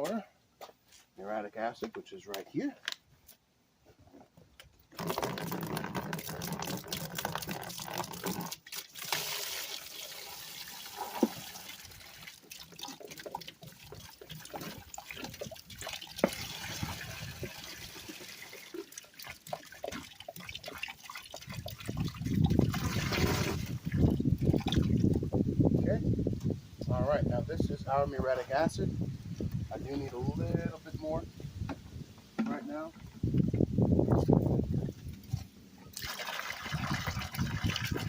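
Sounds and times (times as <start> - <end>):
liquid pouring into plastic bin: 4.9 - 25.2, 35.9 - 38.0.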